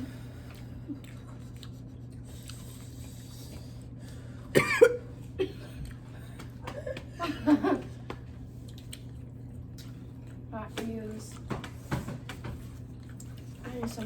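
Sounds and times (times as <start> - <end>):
steady low hum: 0.0 - 14.0
people coughing: 4.5 - 5.8.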